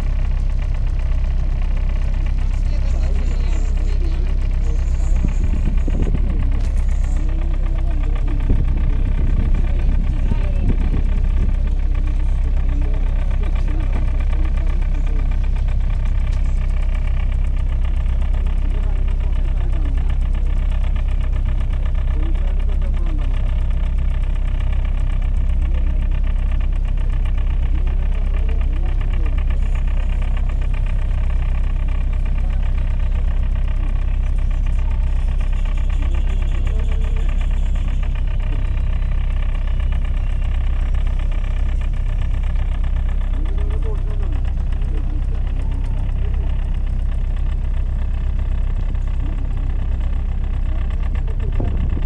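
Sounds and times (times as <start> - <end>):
boat engine rumbling: 0.0 - 52.0.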